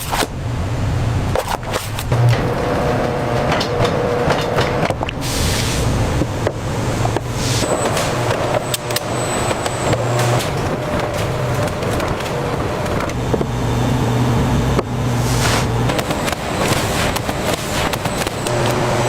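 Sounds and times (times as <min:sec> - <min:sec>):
machinery humming: 0:02.0 - 0:19.0
clattering clicks: 0:06.4 - 0:13.5, 0:14.8 - 0:18.8.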